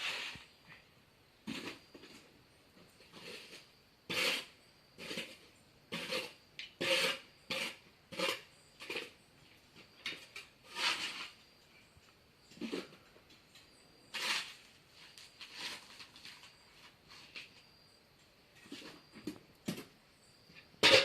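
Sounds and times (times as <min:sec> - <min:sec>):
hand tool scraping wet mortar: 0:00.0 - 0:00.5, 0:01.4 - 0:02.3, 0:03.0 - 0:09.2, 0:10.1 - 0:11.4, 0:14.1 - 0:17.6.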